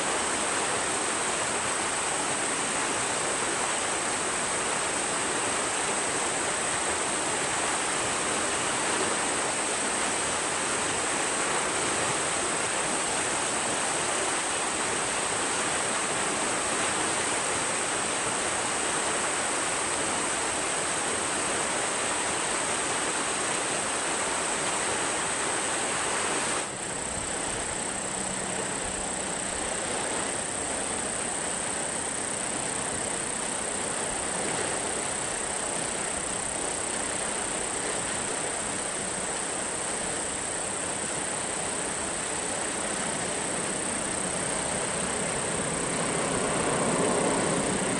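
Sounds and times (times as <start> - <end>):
airliner engine rushing: 43.3 - 47.9.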